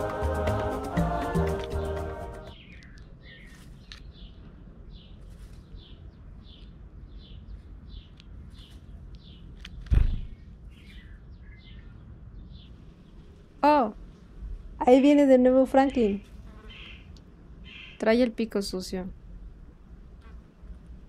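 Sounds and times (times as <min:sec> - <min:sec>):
low outdoor rumble: 0:00.0 - 0:16.4, 0:17.0 - 0:21.0
small bird chirping: 0:02.5 - 0:13.9, 0:14.8 - 0:19.0
loud thump: 0:09.9 - 0:10.4.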